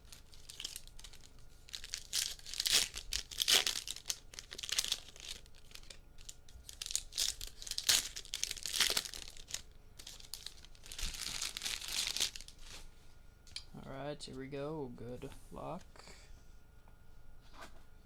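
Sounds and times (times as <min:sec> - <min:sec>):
packaging crinkling and tearing: 0:00.0 - 0:12.9.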